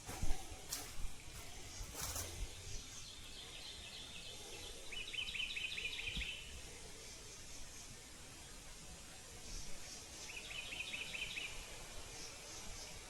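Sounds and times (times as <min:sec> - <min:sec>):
faint bird twittering: 0:00.1 - 0:08.0.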